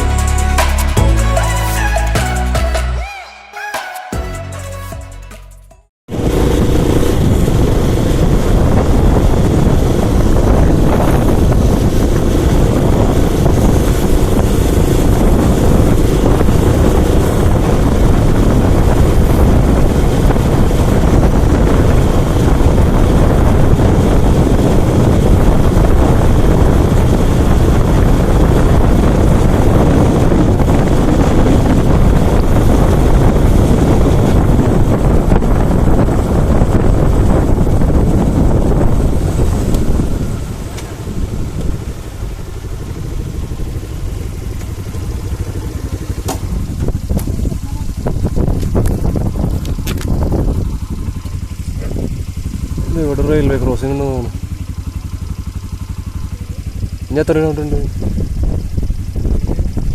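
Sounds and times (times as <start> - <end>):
motorcycle engine running: 0.0 - 3.0, 6.1 - 59.9
wind rush on microphone: 6.1 - 59.9.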